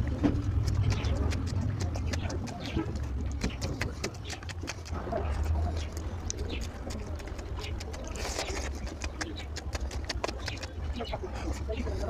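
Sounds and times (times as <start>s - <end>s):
chewing and lip-smacking: 0.0s - 12.0s
steady low hum: 0.0s - 12.0s.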